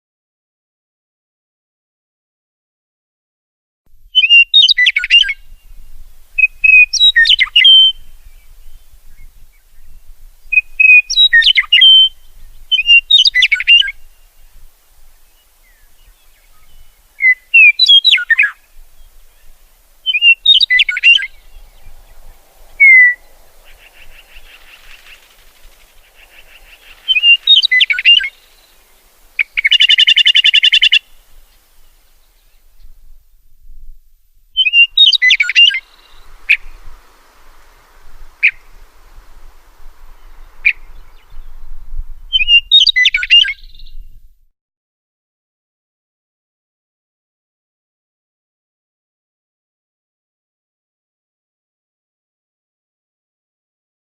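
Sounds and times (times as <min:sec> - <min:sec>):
songbird singing: 0:03.9 - 0:44.4
fast buzzy bird trill: 0:20.1 - 0:31.2, 0:34.6 - 0:41.7.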